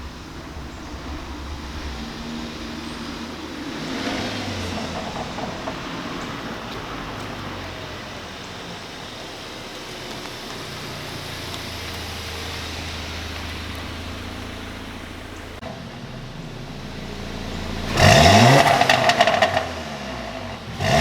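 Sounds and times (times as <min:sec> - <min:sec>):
tyre and wind noise: 0:00.0 - 0:08.8
low exhaust drone: 0:00.0 - 0:21.0.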